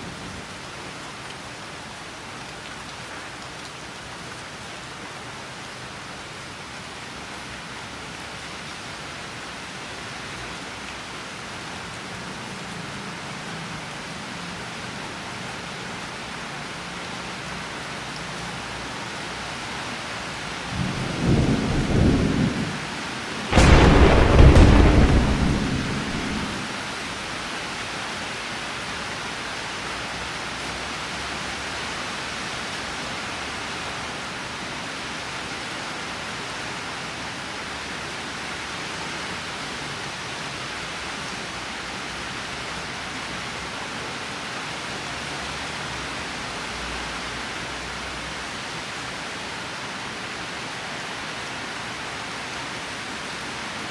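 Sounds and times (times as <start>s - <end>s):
steady rain: 0.0s - 53.9s
thunder rumbling: 20.8s - 22.8s, 23.5s - 27.0s
loud thunderclap: 23.5s - 27.0s.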